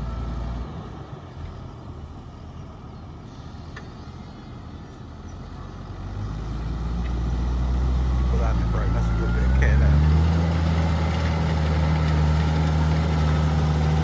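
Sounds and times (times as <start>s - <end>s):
tractor engine under load: 0.0s - 14.0s.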